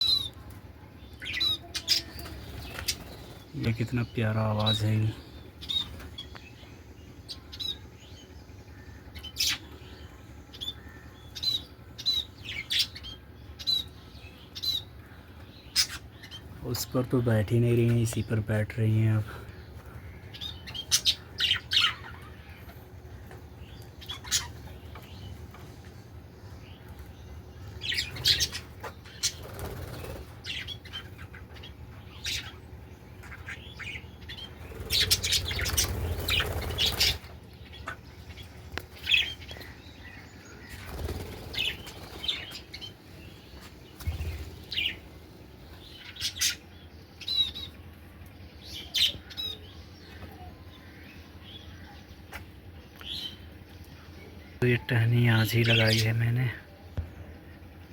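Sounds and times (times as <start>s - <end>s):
budgerigars chirping: 1.2s - 25.5s, 26.4s - 47.9s, 48.6s - 56.6s
wing flapping: 29.2s - 30.6s, 34.6s - 37.4s, 40.7s - 42.6s.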